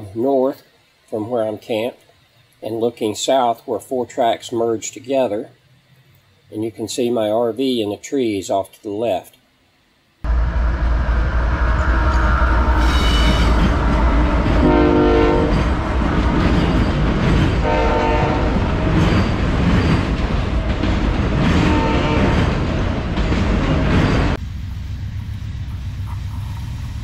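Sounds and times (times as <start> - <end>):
freight train rumbling and clattering: 10.3 - 27.0
locomotive air horn blasts: 11.9 - 15.8, 17.6 - 18.6, 21.6 - 22.5.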